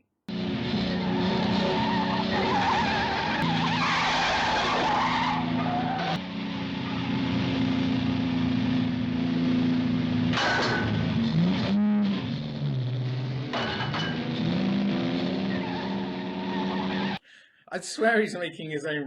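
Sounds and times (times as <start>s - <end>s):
car engines running hard: 0.3s - 17.2s
tyres squealing: 0.9s - 6.2s, 15.4s - 17.2s.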